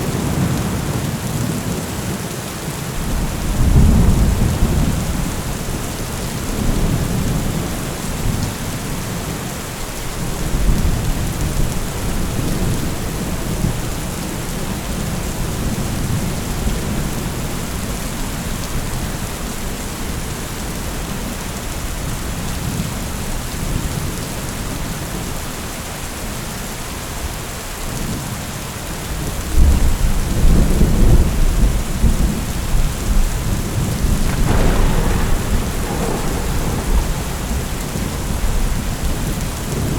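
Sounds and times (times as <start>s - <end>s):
steady rain: 0.0s - 39.9s
rolling thunder: 3.0s - 9.3s, 29.6s - 39.9s.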